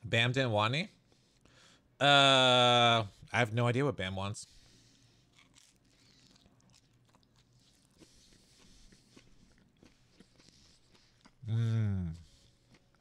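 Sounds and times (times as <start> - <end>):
faint chewing: 4.6 - 13.0.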